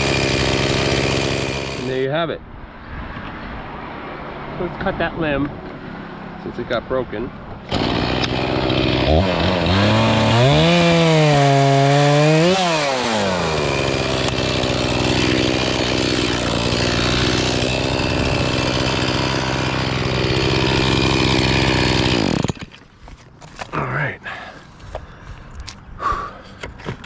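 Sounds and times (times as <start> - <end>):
chainsaw cutting wood: 0.0 - 2.0, 7.7 - 22.9.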